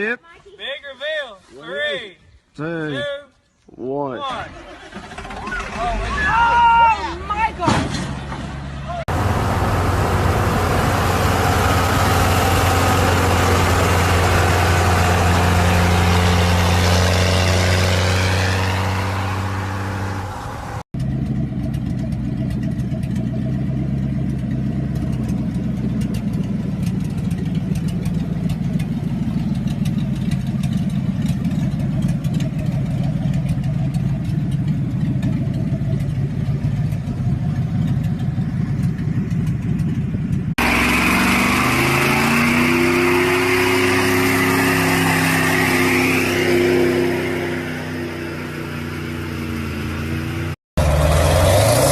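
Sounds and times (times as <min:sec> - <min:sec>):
truck engine humming: 0:08.5 - 0:51.9
rough engine ticking: 0:09.1 - 0:17.1, 0:20.6 - 0:41.0.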